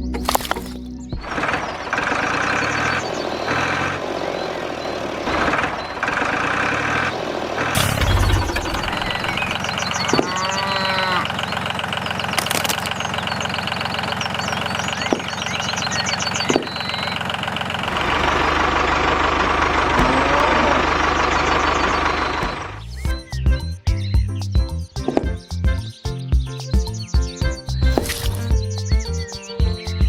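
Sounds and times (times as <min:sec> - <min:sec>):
tractor engine idling: 0:00.0 - 0:23.0
deep hum: 0:07.7 - 0:11.7, 0:17.8 - 0:23.0.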